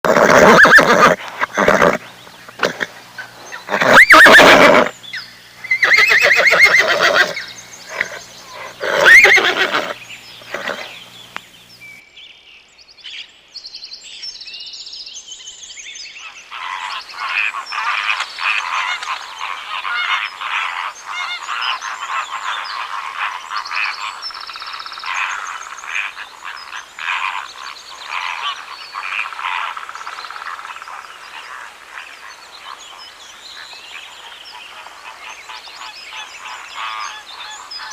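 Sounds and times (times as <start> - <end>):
farm animal calls: 0.1 - 4.9, 5.6 - 11.5
high chirps: 3.7 - 9.9.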